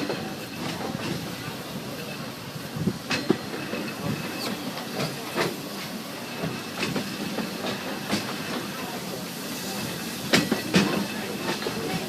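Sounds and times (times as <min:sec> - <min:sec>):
steam train hissing: 0:00.0 - 0:12.0
train wheels clacking and knocking: 0:00.0 - 0:12.0.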